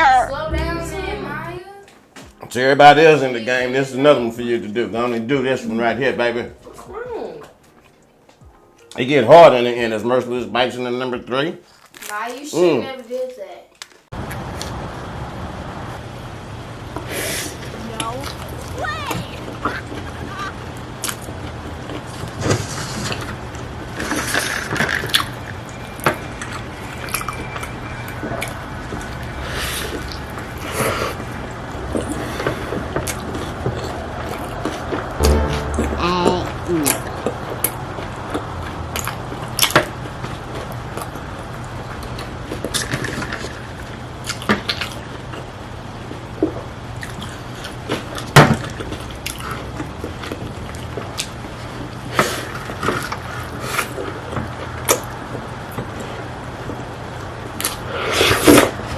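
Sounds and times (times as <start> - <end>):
wet chewing and slurping: 47.0 - 55.1.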